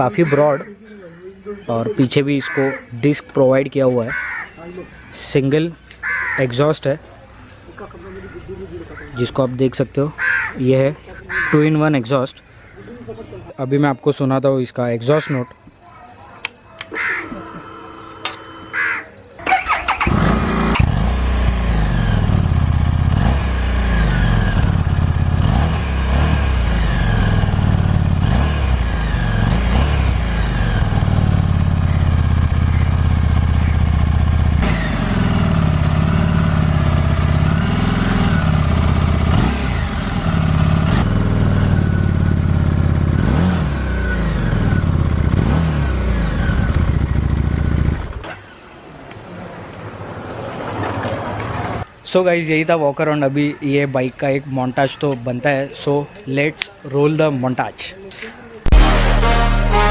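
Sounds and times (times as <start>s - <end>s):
motorcycle engine revving: 19.4s - 48.2s, 58.7s - 59.9s.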